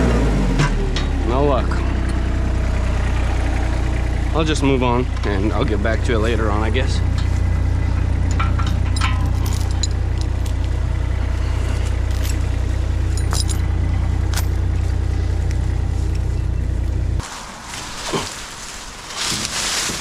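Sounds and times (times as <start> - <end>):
skid steer engine running: 0.0 - 17.4
metallic clinks and rattles: 7.0 - 16.8.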